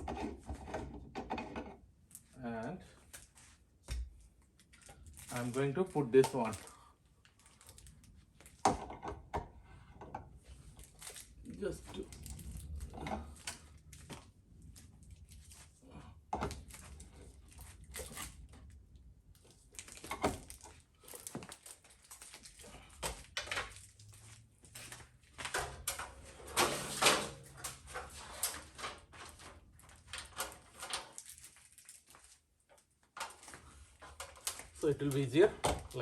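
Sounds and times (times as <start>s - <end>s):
objects clicking and knocking: 19.4s - 31.7s.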